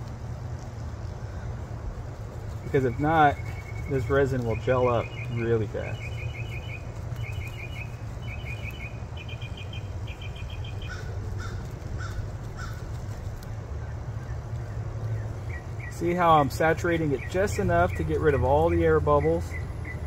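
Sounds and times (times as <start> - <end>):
steady low hum: 0.0 - 20.0
bird rattling call: 6.0 - 13.2.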